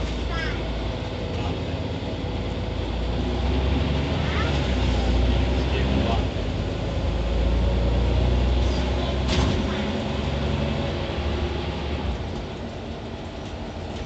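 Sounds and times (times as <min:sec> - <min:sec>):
bus diesel engine drone: 0:00.0 - 0:14.0.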